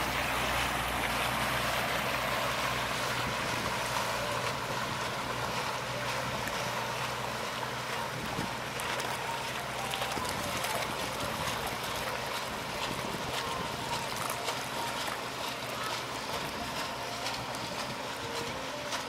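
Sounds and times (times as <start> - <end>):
paddle wheels churning water: 0.0 - 19.0
small splashes and clicks: 8.4 - 19.0.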